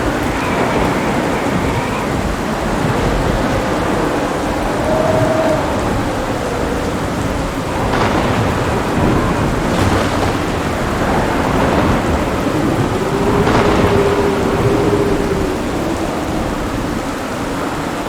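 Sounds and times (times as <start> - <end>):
heavy rain: 0.0 - 18.0
thunder rumbling: 0.0 - 18.0
sharp crackles: 7.7 - 15.7.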